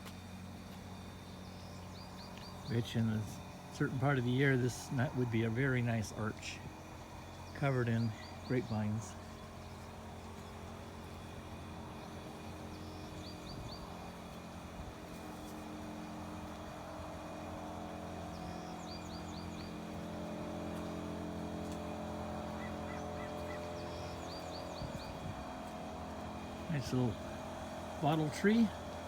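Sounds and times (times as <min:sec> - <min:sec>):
steady low hum: 0:00.0 - 0:29.0
bird chirping: 0:07.2 - 0:10.7, 0:12.0 - 0:14.1, 0:18.3 - 0:19.9, 0:22.6 - 0:25.2.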